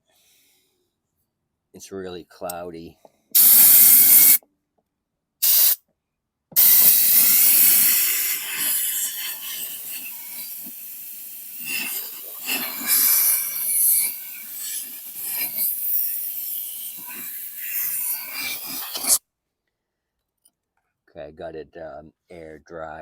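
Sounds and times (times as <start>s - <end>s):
compressed air blowgun hissing: 3.4s - 4.4s, 5.4s - 5.8s, 6.6s - 19.2s.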